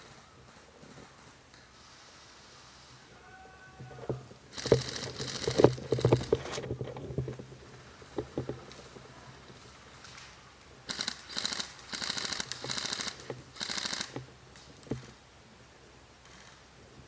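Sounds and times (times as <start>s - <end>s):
camera rustling and knocking: 4.0s - 9.6s.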